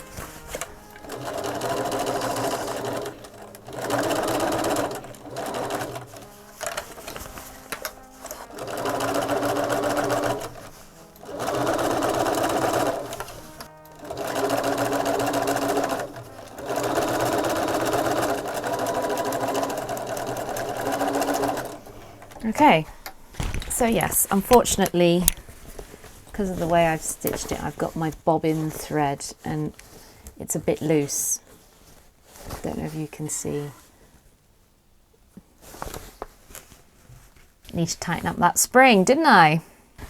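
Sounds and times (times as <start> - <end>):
sewing machine stitching: 0.0 - 24.9.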